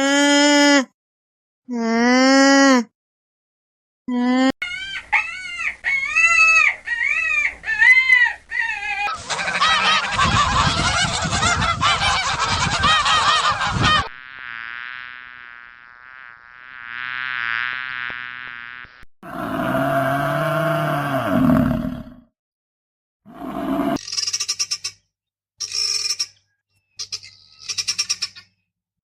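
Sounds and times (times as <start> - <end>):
waterfowl honking: 9.1 - 14.1
buzzing drone: 13.7 - 19.1.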